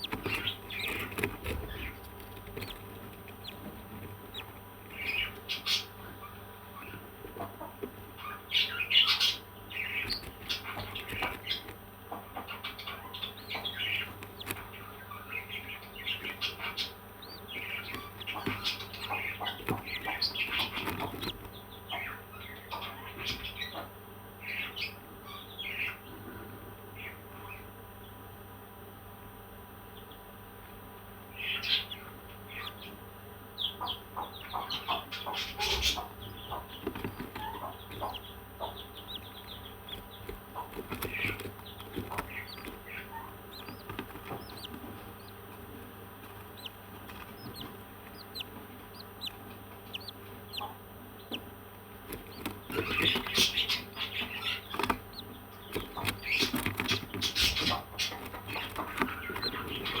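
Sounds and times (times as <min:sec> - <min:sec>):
parrots chirping and squawking: 0:00.0 - 0:07.0, 0:12.4 - 0:23.7, 0:34.6 - 0:45.8, 0:46.4 - 0:51.5, 0:52.1 - 1:00.0.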